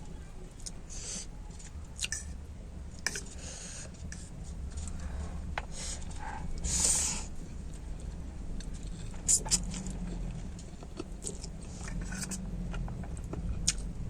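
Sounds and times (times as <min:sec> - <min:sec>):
wet chewing of noodles: 0:03.0 - 0:14.0.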